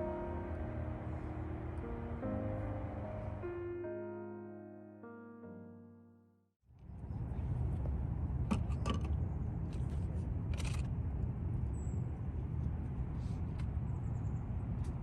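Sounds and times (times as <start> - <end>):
low outdoor rumble: 0.0 - 4.0, 6.7 - 15.0.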